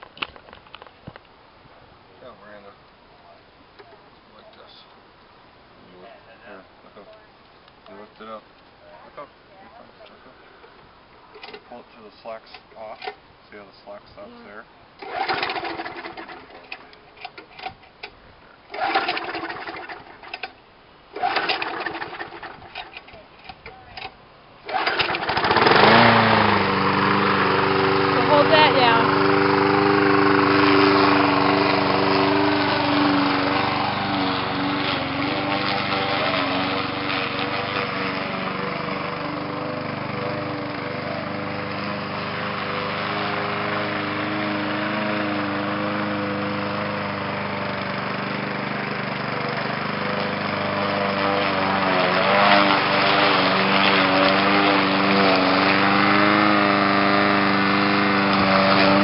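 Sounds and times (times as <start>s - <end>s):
lawn mower engine running: 11.4s - 11.8s, 15.0s - 18.1s, 18.7s - 59.0s.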